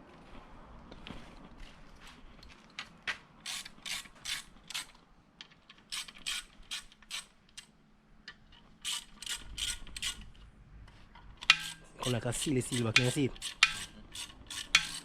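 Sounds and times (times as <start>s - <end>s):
ratchet wrench clicking: 8.8s - 10.3s, 11.4s - 15.0s.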